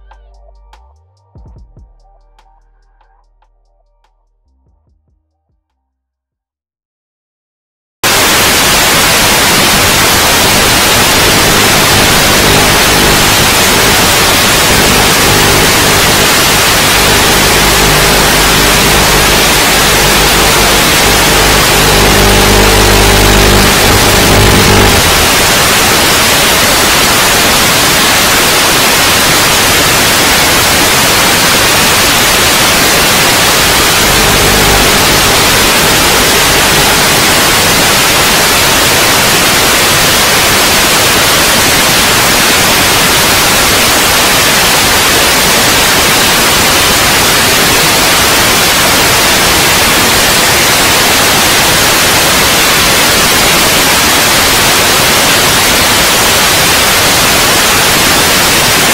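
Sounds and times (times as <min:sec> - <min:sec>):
loud static hiss: 0:08.0 - 0:58.9
motor hum: 0:11.1 - 0:25.6, 0:33.6 - 0:37.6.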